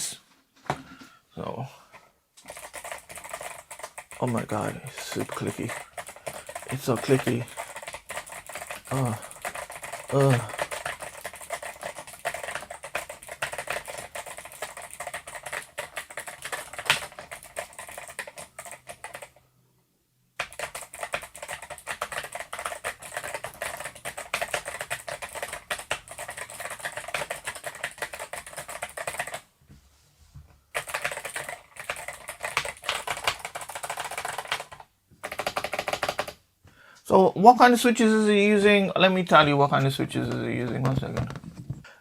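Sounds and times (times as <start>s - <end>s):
clicky keyboard typing: 2.4s - 19.4s, 20.4s - 29.4s, 30.7s - 36.4s.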